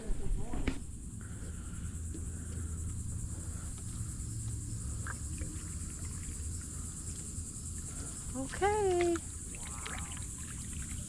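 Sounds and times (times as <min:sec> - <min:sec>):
high-pitched insect buzz: 0:03.0 - 0:11.0.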